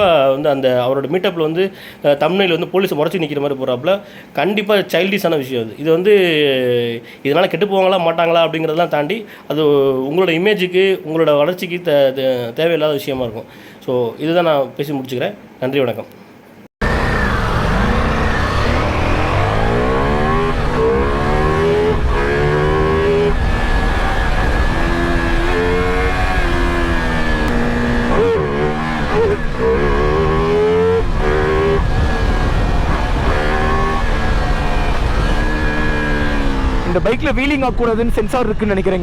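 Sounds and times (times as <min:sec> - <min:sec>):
motorcycle engine accelerating: 0:16.8 - 0:37.8.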